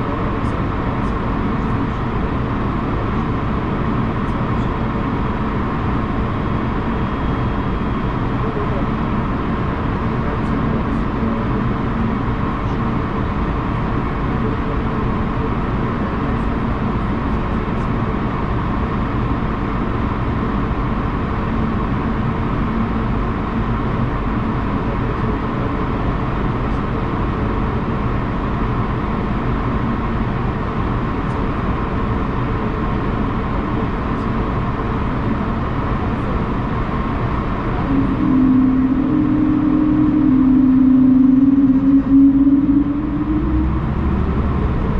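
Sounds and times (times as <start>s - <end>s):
strong low drone: 0.0s - 20.4s, 36.0s - 44.9s
airliner running noise: 0.0s - 44.9s.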